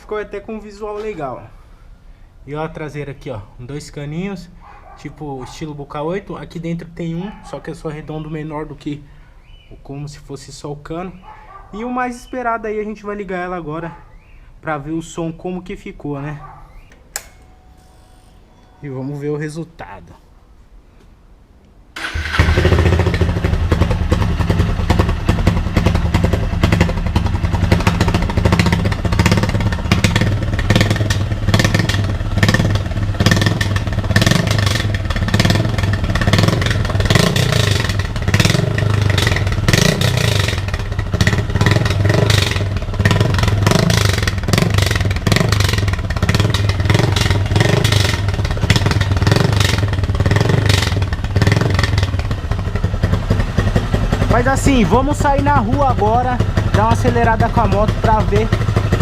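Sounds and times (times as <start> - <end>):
exhaust popping and crackling: 22.0 - 59.0
motorcycle engine idling loudly: 22.0 - 59.0.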